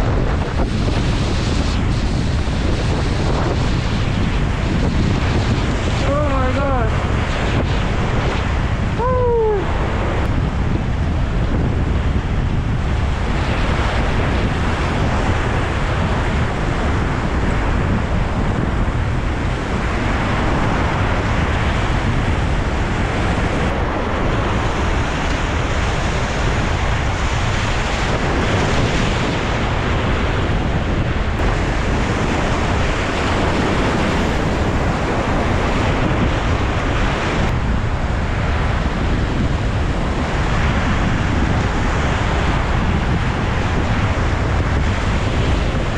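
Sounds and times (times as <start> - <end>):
wind rumbling on microphone: 0.0 - 45.9.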